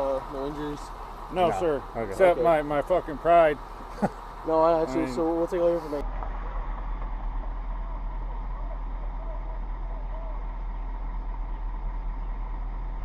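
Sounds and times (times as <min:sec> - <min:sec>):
faint voices: 0:00.0 - 0:06.0, 0:07.8 - 0:10.8
vehicle engine idling: 0:00.0 - 0:13.0.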